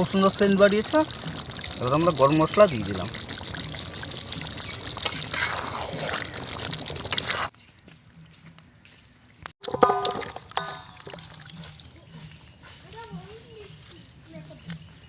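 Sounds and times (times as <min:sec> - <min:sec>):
curry hissing in a pot: 0:00.0 - 0:07.5, 0:10.2 - 0:12.2.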